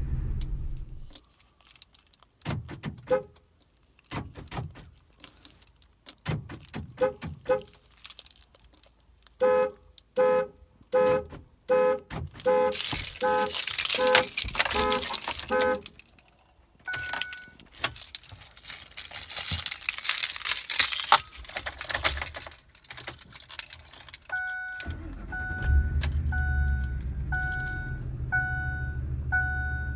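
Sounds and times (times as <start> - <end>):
truck engine cranking and idling: 0.0 - 1.2, 22.6 - 29.9
keys jangling: 1.2 - 2.5, 3.6 - 9.1, 12.3 - 25.1, 25.9 - 28.0.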